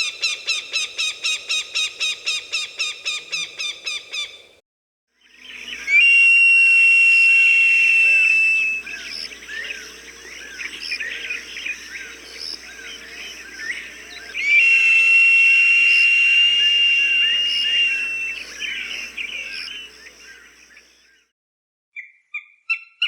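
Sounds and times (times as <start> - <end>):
hawk whistled calls: 5.7 - 9.8, 13.0 - 20.0.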